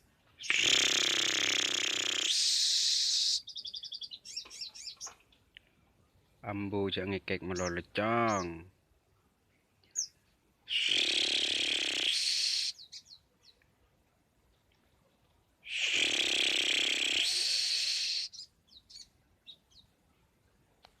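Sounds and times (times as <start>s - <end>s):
lovebird chattering trill: 0.4s - 5.2s, 10.7s - 13.6s, 15.6s - 19.8s
short high bird chirps: 2.1s - 5.2s, 10.7s - 13.6s, 15.6s - 19.9s.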